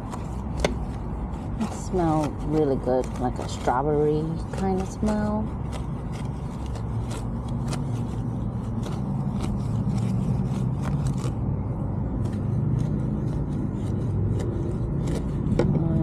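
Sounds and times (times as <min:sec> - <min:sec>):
steady low hum: 0:00.0 - 0:16.0
stiff brush scrubbing a wheel: 0:00.0 - 0:16.0.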